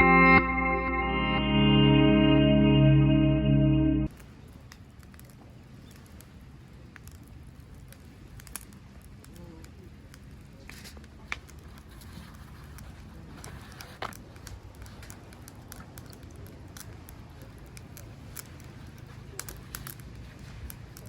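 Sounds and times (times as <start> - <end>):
steady low rumble: 0.0 - 4.1
campfire crackling and popping: 4.1 - 21.0.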